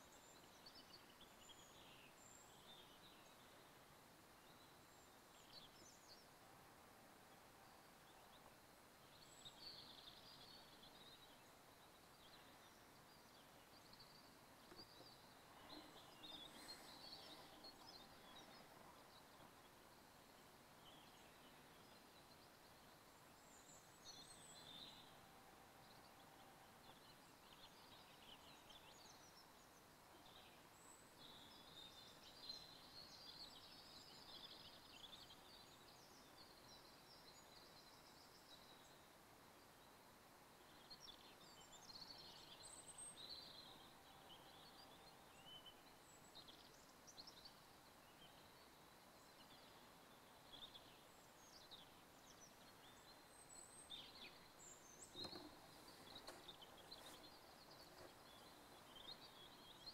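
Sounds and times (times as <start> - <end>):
background hiss: 0.0 - 59.9
faint songbirds singing: 0.0 - 59.9
soft knock: 55.1 - 56.5.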